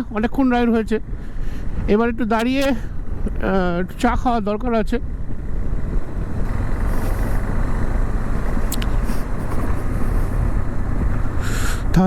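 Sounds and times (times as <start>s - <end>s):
wind and road noise: 0.0s - 12.0s
motorcycle engine running: 2.5s - 12.0s.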